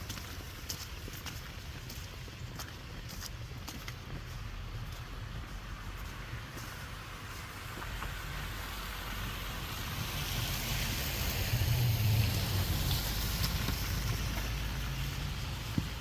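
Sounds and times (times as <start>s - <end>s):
tyres hissing on wet street: 0.0s - 16.0s
car engine rumble: 4.7s - 16.0s.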